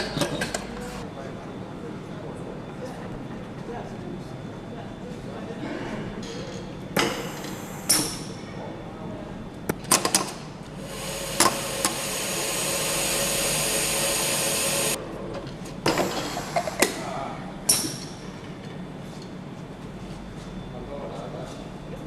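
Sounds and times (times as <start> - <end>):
powered tool running: 10.7 - 15.0.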